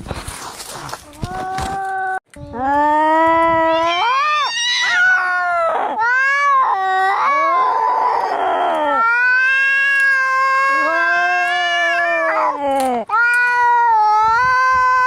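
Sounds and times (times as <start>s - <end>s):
cats yowling: 3.5s - 15.0s.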